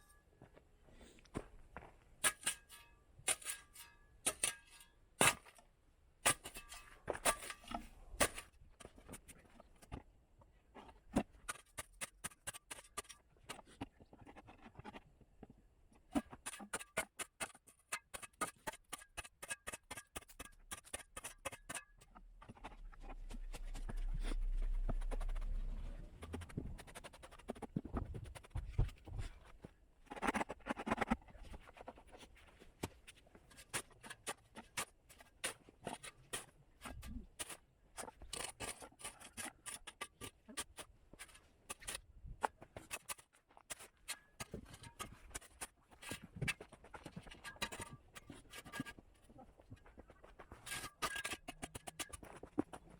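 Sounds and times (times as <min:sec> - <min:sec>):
low rumble: 0:22.9 - 0:26.9.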